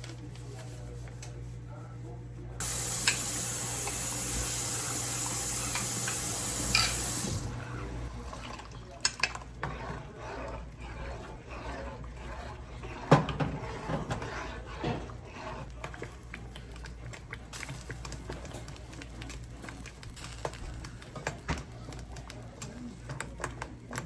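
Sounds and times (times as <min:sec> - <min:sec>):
kitchenware clicks and clatters: 0:02.6 - 0:07.5, 0:08.3 - 0:10.1, 0:12.8 - 0:15.2, 0:15.8 - 0:24.0
kitchen faucet running: 0:02.6 - 0:09.4.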